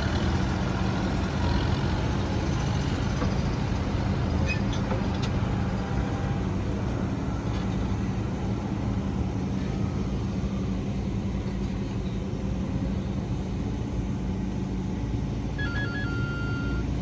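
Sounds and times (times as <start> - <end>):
diesel machinery engine drone: 0.0 - 17.0
electronic melody of high tones: 15.6 - 16.9.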